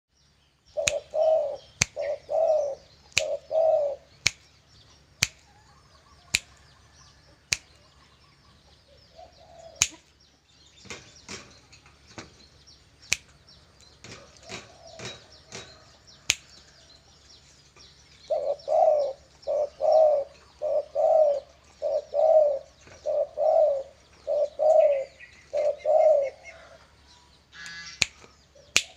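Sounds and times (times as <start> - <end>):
finger snaps: 0.8 - 2.1, 3.1 - 3.4, 4.2 - 4.4, 5.2 - 5.4, 7.5 - 7.8, 9.8 - 10.0, 13.1 - 13.3, 16.3 - 16.6, 28.0 - 28.9
dove cooing: 0.8 - 4.1, 8.0 - 10.0, 14.1 - 16.3, 18.3 - 28.0.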